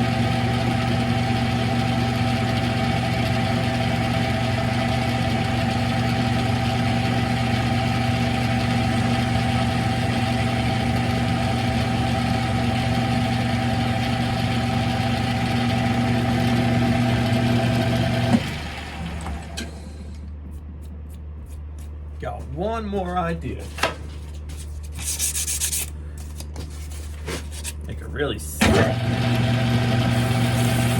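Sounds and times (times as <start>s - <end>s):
lathe motor hum: 0.0s - 20.2s, 28.7s - 30.9s.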